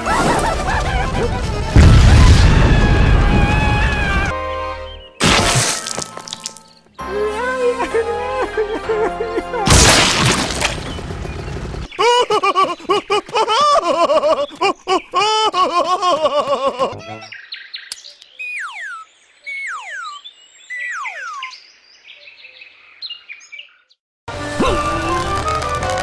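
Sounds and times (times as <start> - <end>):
music: 0.6 - 1.8, 4.0 - 5.2, 6.2 - 9.7, 16.9 - 17.3, 24.3 - 26.0
cartoon bird tweets: 17.0 - 21.6.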